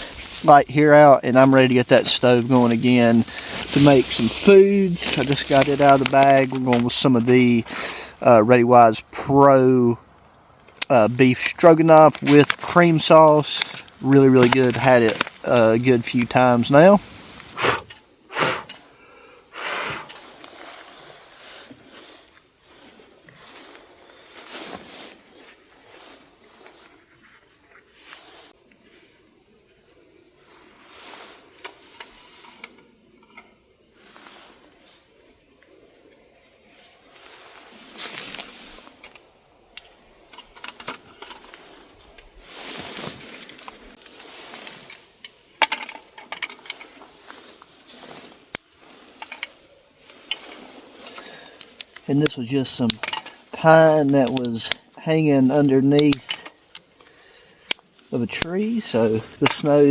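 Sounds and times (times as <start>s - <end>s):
rustling and scraping of gear: 0.0s - 9.1s, 10.6s - 19.0s, 19.9s - 29.2s, 30.2s - 59.9s
small clicks and metallic clinks: 48.5s - 59.9s.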